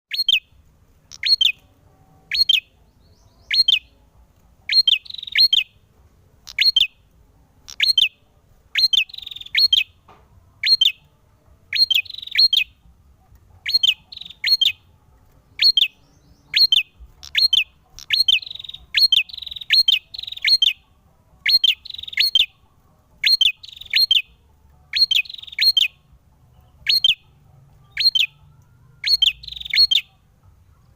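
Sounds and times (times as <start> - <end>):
bird singing sharp chirps: 0.1 - 0.5, 1.1 - 1.6, 2.3 - 4.0, 4.7 - 5.8, 6.5 - 7.0, 7.7 - 10.0, 10.6 - 11.0, 11.7 - 12.8, 13.6 - 14.8, 15.6 - 20.8, 21.4 - 22.6, 23.2 - 24.3, 24.9 - 26.0, 26.8 - 27.3, 27.9 - 28.4, 29.0 - 30.2.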